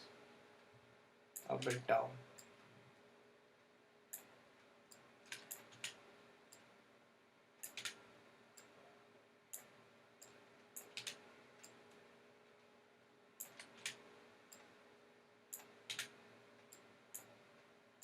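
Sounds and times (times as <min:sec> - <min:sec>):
mouse and keyboard clicks: 0:01.4 - 0:01.9, 0:04.9 - 0:06.6, 0:07.6 - 0:08.0, 0:10.8 - 0:11.8, 0:13.4 - 0:14.6, 0:15.6 - 0:17.3.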